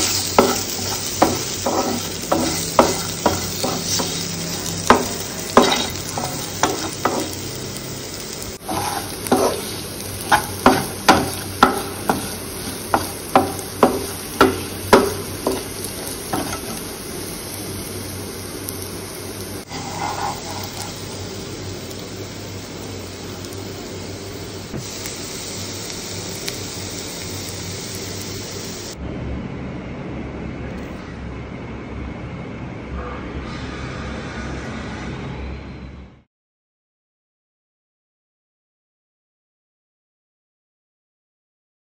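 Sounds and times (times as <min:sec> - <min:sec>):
spatula scraping and knocking pan: 0:00.0 - 0:07.5, 0:08.6 - 0:16.9, 0:19.7 - 0:21.2
potatoes sizzling in oil: 0:00.0 - 0:29.0.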